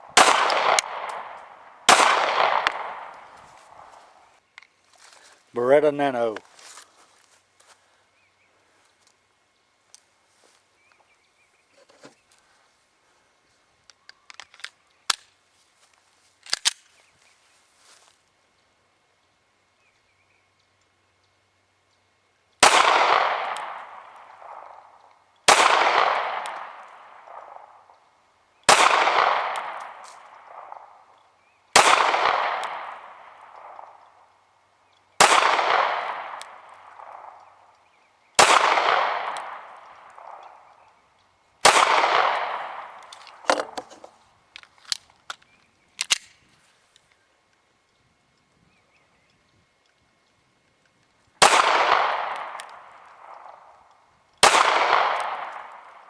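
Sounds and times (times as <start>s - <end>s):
pistol shots echoing: 0.0s - 4.2s, 22.6s - 27.9s, 28.6s - 31.1s, 31.7s - 34.2s, 35.2s - 37.7s, 38.4s - 40.8s, 41.6s - 43.9s, 51.4s - 56.0s
gun handling clicks: 0.2s - 4.0s, 13.8s - 17.1s, 34.9s - 48.5s, 49.8s - 56.0s.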